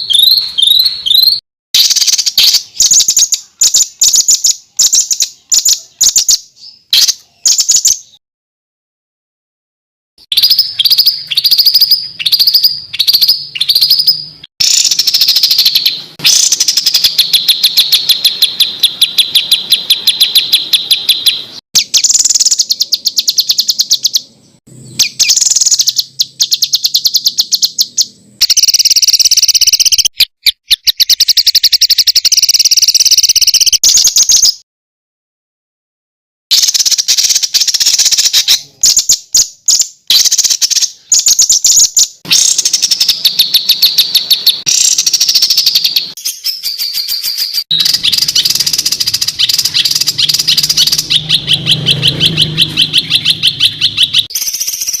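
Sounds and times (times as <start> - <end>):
songbird rattling trills: 10.3 - 24.2, 24.8 - 34.6, 40.1 - 55.0.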